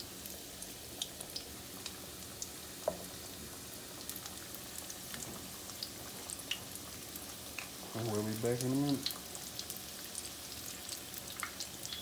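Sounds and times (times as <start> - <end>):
food sizzling in hot oil: 0.0 - 12.0
oil popping and crackling: 0.0 - 12.0.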